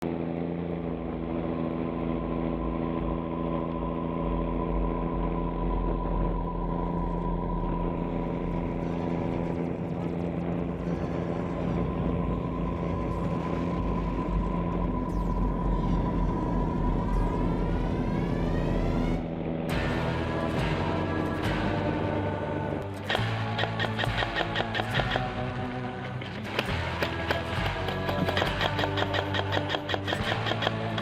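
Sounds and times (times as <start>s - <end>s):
constant high whine: 0.0s - 31.0s
steady engine drone: 0.0s - 31.0s.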